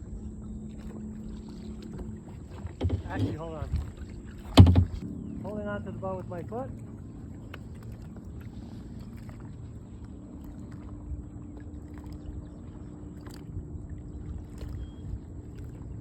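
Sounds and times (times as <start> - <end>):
water moving around kayak: 0.0 - 16.0
faint knocks: 2.6 - 3.6, 4.4 - 5.0.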